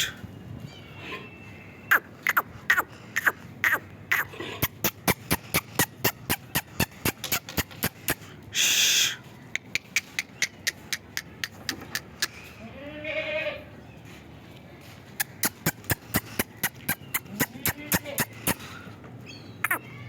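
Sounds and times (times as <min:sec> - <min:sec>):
rapid sharp clicks: 0:04.6 - 0:08.2.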